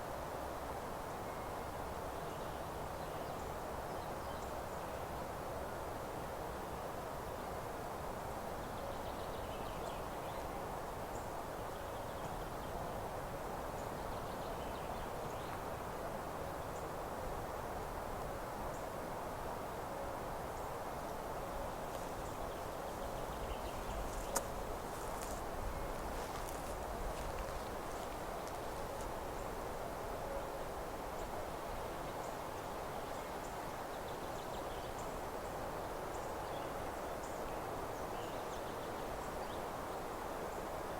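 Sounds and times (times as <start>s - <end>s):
steady rushing hiss: 15.2s - 40.9s.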